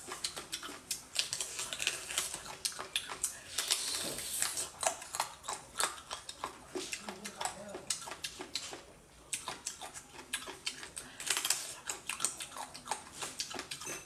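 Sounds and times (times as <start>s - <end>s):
person biting and chewing seafood: 0.0s - 14.0s.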